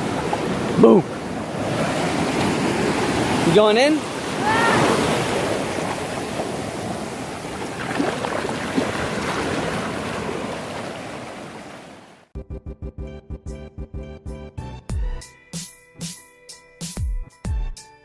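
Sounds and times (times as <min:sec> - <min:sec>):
ocean waves breaking: 0:00.0 - 0:12.3.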